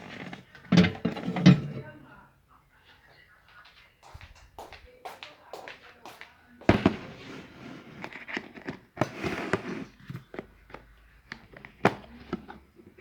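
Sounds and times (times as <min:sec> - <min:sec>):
plastic cookware knocks: 0:00.0 - 0:01.9, 0:06.7 - 0:07.3.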